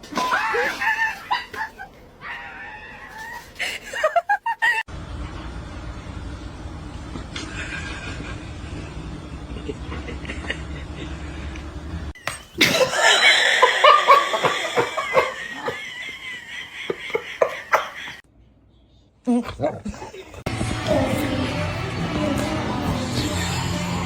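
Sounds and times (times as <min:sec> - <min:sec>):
person laughing hard: 0:00.2 - 0:01.9, 0:03.6 - 0:04.9, 0:07.4 - 0:11.7, 0:12.6 - 0:18.2
low steady rumble: 0:04.9 - 0:12.2.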